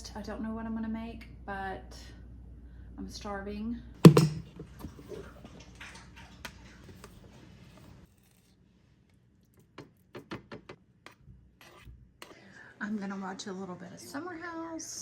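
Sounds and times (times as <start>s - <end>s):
loud thump: 4.0s - 4.5s
kitchen items clicking and knocking: 4.0s - 5.2s.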